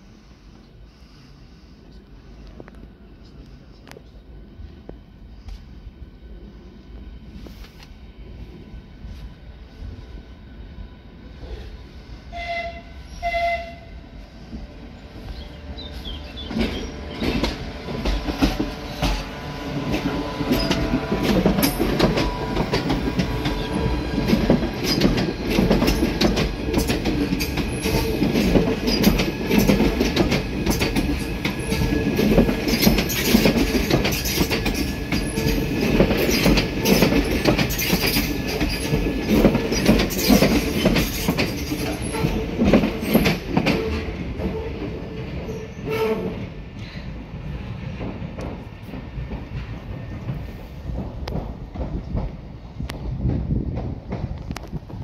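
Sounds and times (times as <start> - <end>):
electric train passing: 0.0 - 55.0
train horn toots: 12.3 - 24.4, 41.9 - 46.6.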